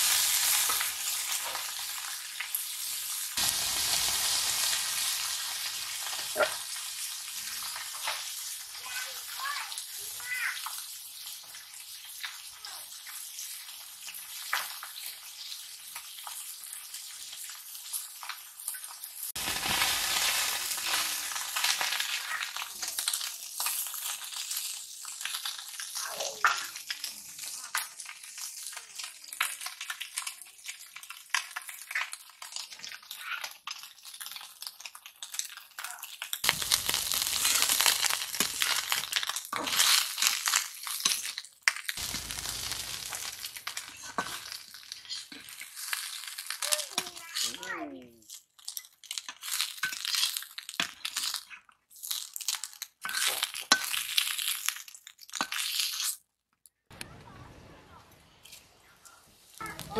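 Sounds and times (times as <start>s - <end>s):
fish sizzling in hot oil: 0.0s - 56.2s, 58.4s - 59.9s
metal spatula scraping: 42.4s - 45.9s.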